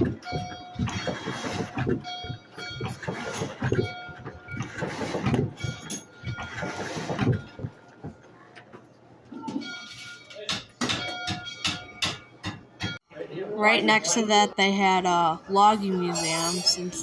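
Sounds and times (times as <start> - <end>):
thin steady ringing tones: 9.5 - 13.0, 13.7 - 17.0.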